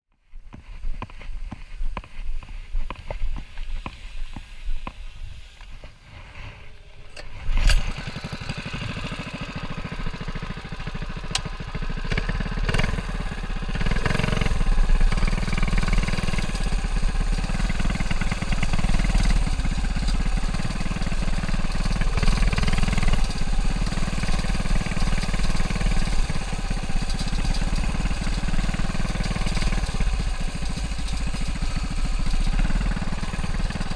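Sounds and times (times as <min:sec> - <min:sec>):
small engine running: 0:03.8 - 0:33.9
engine knocks and clicks: 0:07.1 - 0:33.9.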